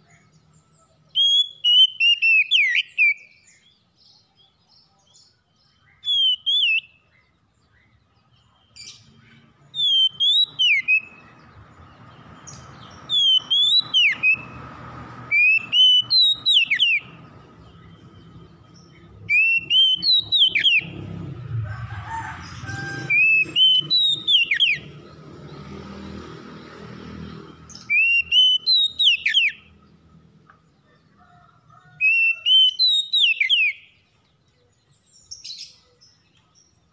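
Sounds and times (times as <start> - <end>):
bird singing whistled phrases: 1.2 - 3.6, 5.8 - 7.0, 9.8 - 11.2, 13.1 - 14.5, 15.3 - 17.1, 19.3 - 20.9, 23.2 - 24.9, 27.7 - 29.6, 32.1 - 33.9.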